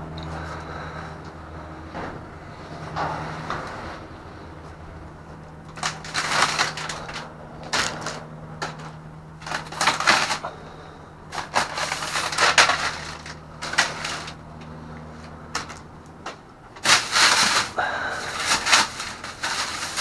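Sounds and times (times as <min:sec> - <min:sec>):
steady low hum: 0:00.0 - 0:20.0
plastic bags crinkling: 0:05.7 - 0:10.6, 0:11.3 - 0:14.4, 0:15.6 - 0:15.9, 0:16.8 - 0:20.0.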